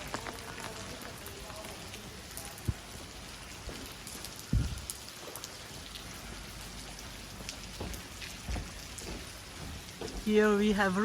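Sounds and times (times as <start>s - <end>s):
steady rain: 0.0s - 11.0s
low thumps: 4.5s - 4.9s.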